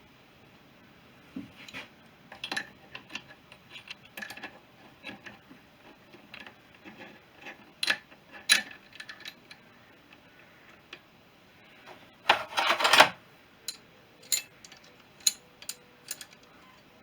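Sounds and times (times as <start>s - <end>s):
metallic tool clicks and clinks: 13.7s - 16.5s.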